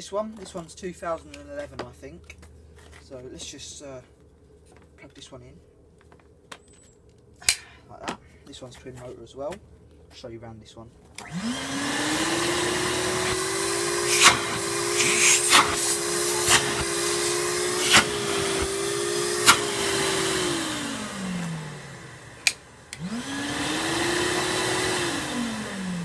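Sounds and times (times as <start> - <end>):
wet vacuum motors humming: 11.2 - 26.0.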